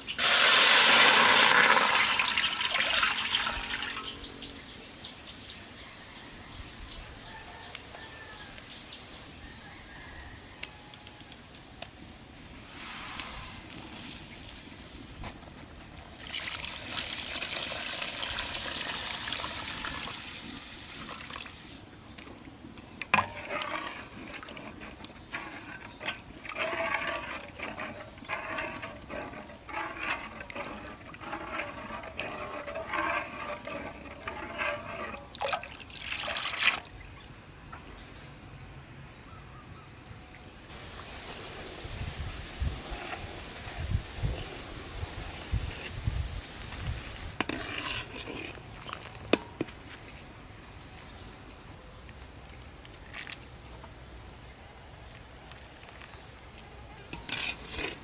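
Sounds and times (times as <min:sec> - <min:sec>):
water pouring: 0:00.2 - 0:04.2, 0:16.2 - 0:21.8, 0:23.1 - 0:36.9.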